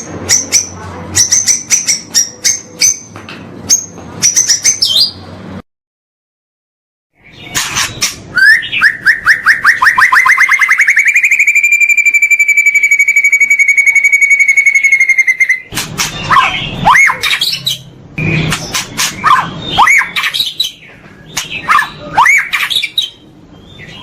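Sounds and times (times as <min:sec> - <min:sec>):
songbird singing: 0:07.2 - 0:24.0.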